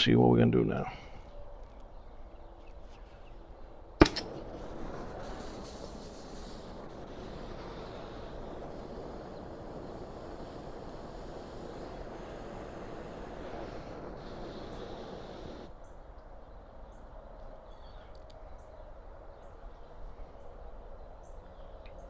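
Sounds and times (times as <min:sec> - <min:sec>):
torch lighting pop: 0:04.0 - 0:15.6
torch flame hissing: 0:04.0 - 0:15.7.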